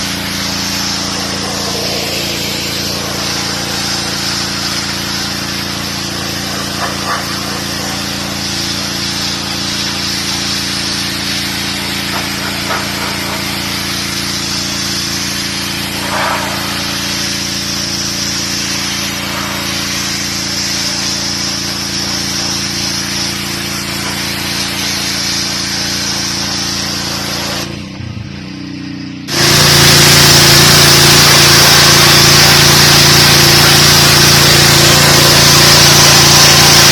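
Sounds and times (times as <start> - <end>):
water jet spraying on concrete: 0.0 - 27.9, 29.3 - 36.9
pressure washer engine running: 0.0 - 36.9.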